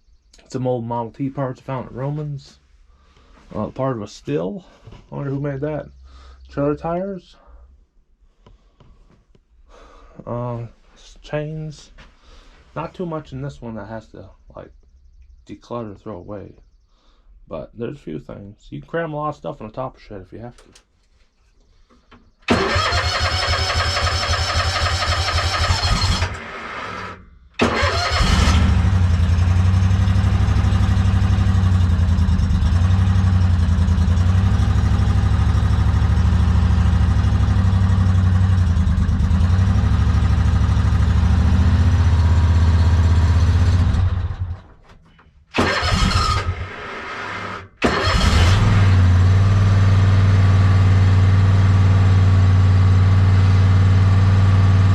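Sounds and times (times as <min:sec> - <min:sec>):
lawn mower electric starter cranking: 0:22.5 - 0:29.0, 0:45.5 - 0:49.2
lawn mower engine running: 0:22.5 - 0:44.6, 0:45.6 - 0:50.1.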